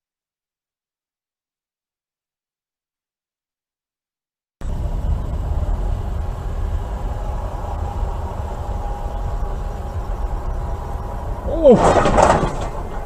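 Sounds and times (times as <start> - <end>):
car engine and road noise: 4.6 - 13.0.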